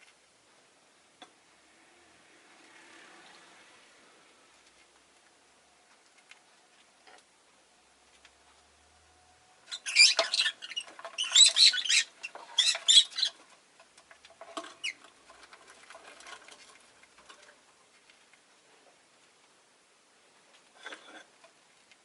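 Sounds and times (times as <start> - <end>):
lovebird chirping and chattering: 9.7 - 13.4.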